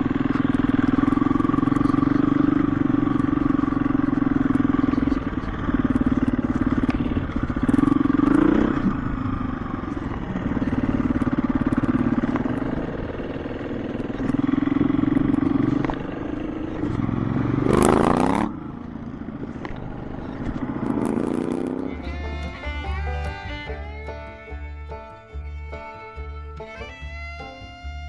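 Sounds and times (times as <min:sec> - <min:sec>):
dirt bike engine revving: 0:00.0 - 0:21.9.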